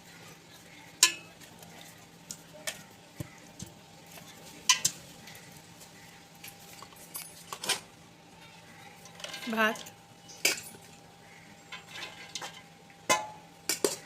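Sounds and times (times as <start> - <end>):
metal spoon scraping pot: 11.6 - 12.7.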